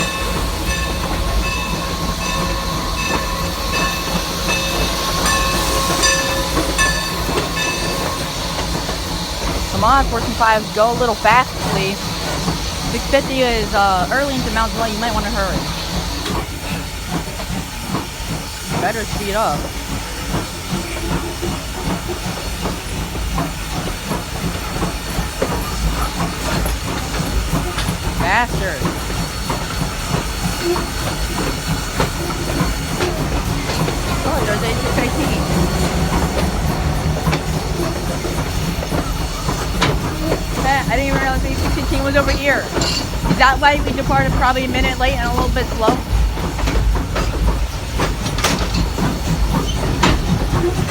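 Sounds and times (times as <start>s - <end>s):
bell ringing: 0.0s - 8.3s
train rumbling: 0.0s - 50.9s.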